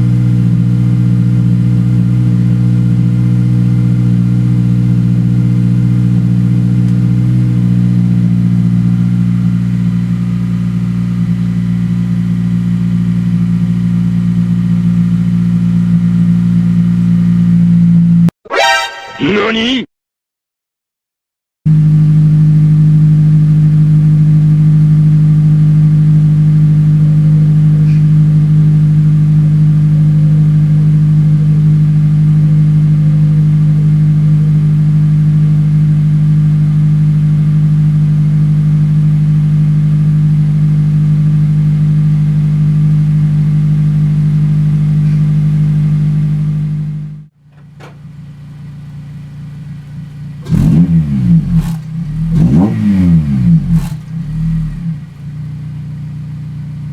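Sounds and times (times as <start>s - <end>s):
car engine droning: 0.0s - 18.3s, 21.7s - 56.9s
engine revving: 50.4s - 55.5s.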